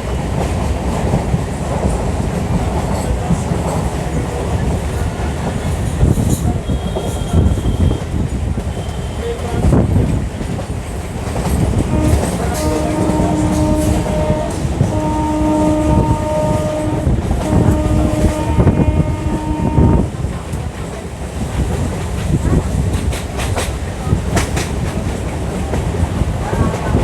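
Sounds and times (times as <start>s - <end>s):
train wheels rumbling on rails: 0.0s - 27.0s
train horn blasts: 11.8s - 20.1s.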